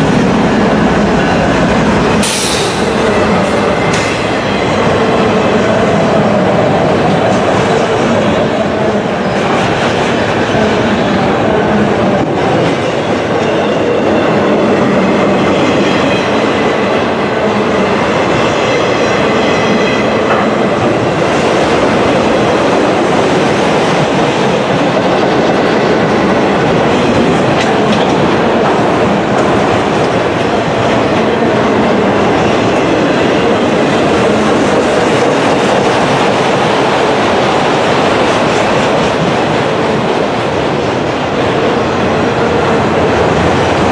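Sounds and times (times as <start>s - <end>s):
train wheels clattering on rail: 0.0s - 5.2s, 6.9s - 43.9s.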